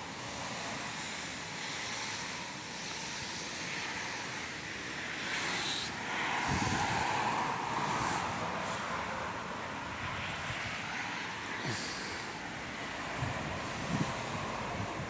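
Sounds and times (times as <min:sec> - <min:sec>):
wind and rain rushing: 0:06.2 - 0:15.0
wind rumble on microphone: 0:06.3 - 0:08.6, 0:13.0 - 0:15.0.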